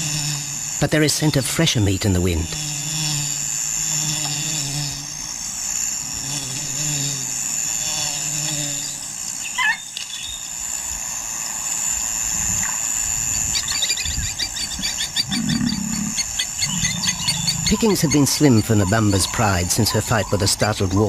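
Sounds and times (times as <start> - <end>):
high insect buzz: 0.0 - 21.0
bird call: 9.4 - 10.4, 13.6 - 20.6.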